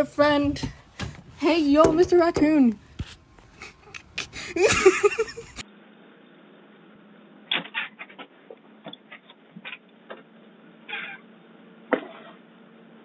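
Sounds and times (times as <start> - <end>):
raccoon wavering cry: 10.9 - 11.2.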